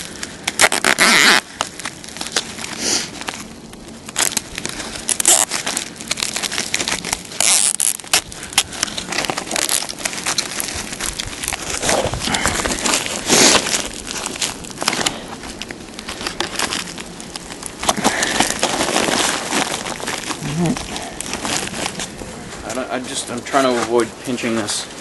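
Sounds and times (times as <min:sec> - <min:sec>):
plastic duct crinkling and crackling: 0:00.0 - 0:25.0.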